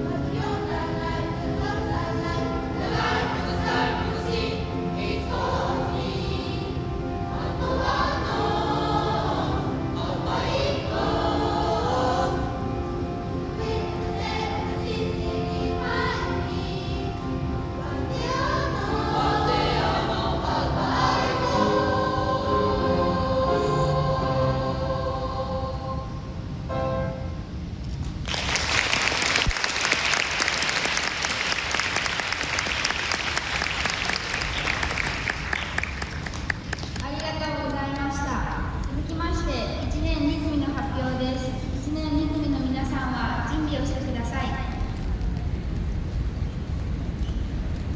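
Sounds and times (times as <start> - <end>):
children's choir singing: 0.0 - 26.8
audience applauding: 28.2 - 38.1.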